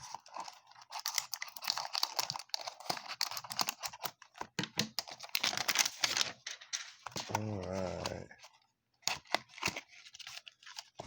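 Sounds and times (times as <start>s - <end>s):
plastic wrap crinkling and tearing: 0.0s - 8.4s.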